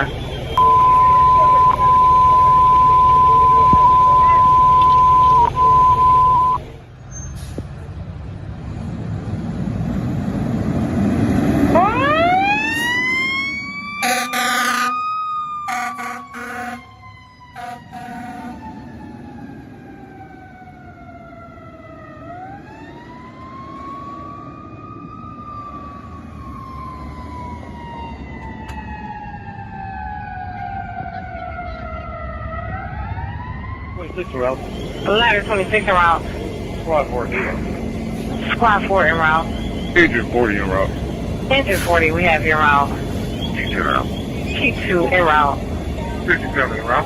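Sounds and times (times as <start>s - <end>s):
fire engine siren wailing: 0.0s - 6.8s, 11.1s - 47.0s
truck engine rumble: 0.0s - 47.0s
short horn blasts: 14.0s - 14.9s, 15.7s - 16.9s, 17.6s - 18.6s.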